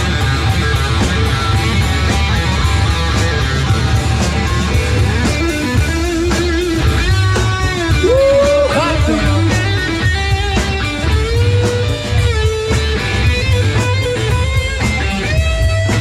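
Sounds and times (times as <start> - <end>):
bass guitar: 0.0 - 16.0
drums: 0.0 - 16.0
electric guitar lead: 0.0 - 16.0.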